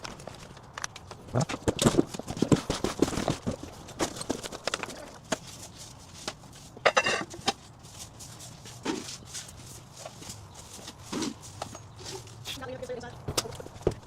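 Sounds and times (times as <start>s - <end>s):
footsteps: 0.0s - 14.0s
household items clattering: 6.8s - 7.6s.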